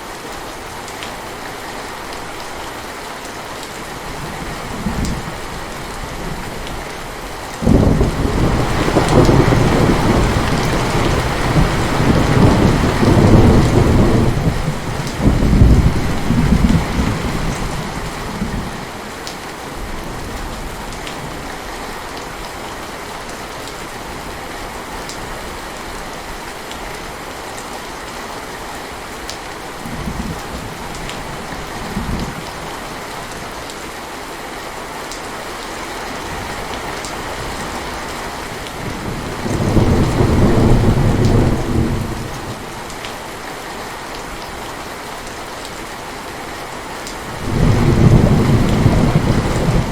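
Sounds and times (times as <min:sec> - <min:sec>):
heavy rain: 0:00.0 - 0:49.9
thunder rumbling: 0:07.6 - 0:18.9, 0:38.8 - 0:42.8, 0:47.3 - 0:49.9.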